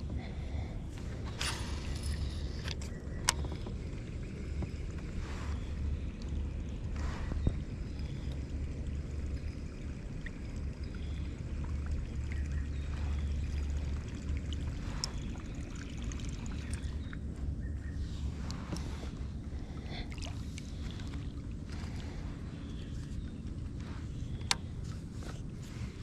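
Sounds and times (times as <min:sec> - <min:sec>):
steady low rumble: 0:00.0 - 0:26.0
water trickling off paddle blades: 0:00.0 - 0:26.0.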